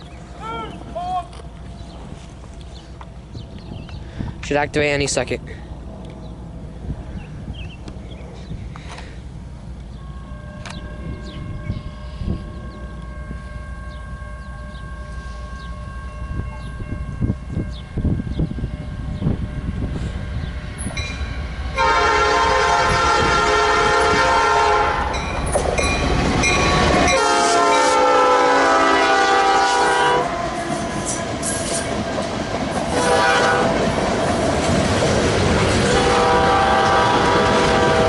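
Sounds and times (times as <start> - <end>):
train rumble and clatter: 0.0 - 38.0
locomotive air horn blasts: 10.0 - 20.5, 21.7 - 25.2, 26.7 - 31.8, 32.9 - 33.8, 35.9 - 38.0.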